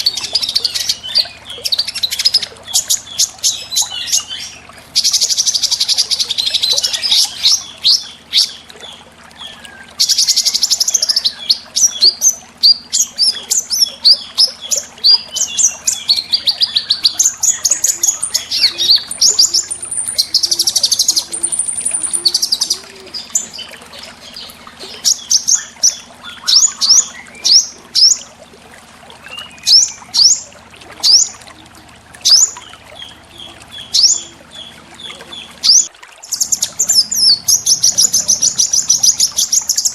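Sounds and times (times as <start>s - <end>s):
songbird trills: 0.0s - 28.4s.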